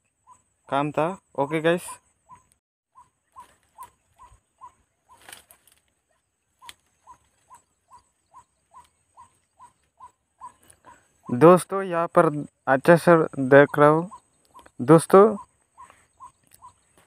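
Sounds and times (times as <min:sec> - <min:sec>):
brief rustle: 0:05.1 - 0:06.0.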